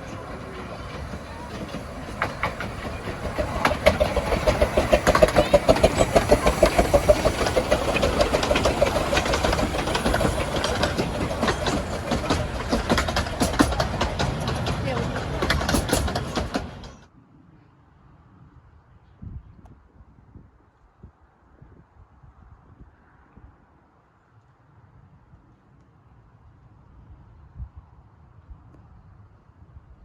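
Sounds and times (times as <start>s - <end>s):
miniature train running past: 0.0s - 17.1s.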